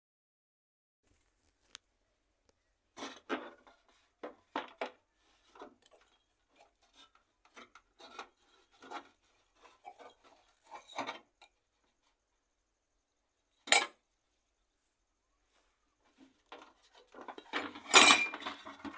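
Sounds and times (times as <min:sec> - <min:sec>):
metal stove parts clinking: 0:13.6 - 0:14.0, 0:16.5 - 0:18.9.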